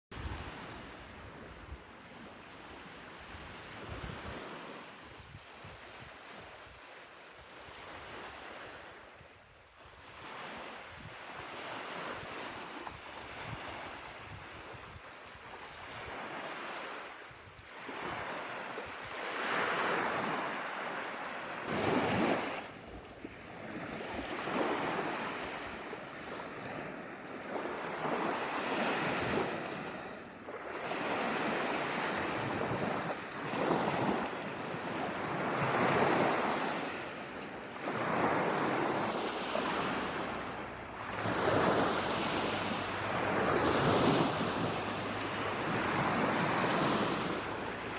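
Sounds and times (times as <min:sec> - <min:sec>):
small waves breaking on beach: 0:00.2 - 0:47.9.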